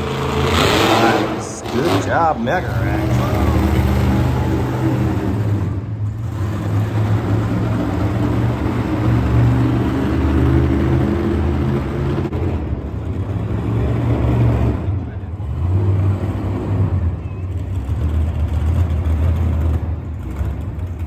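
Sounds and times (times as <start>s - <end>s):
deep engine revving: 0.0s - 12.2s.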